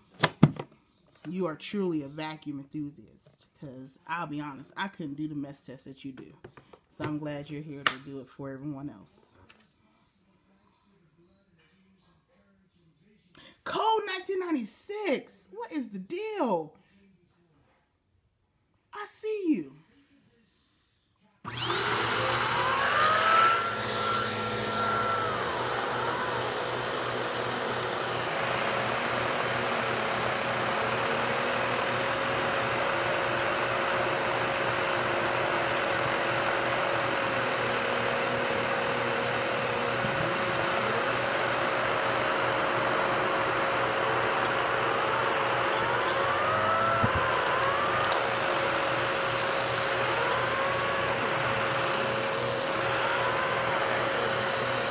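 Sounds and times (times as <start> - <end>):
vacuum cleaner motor whining: 21.5 - 54.9.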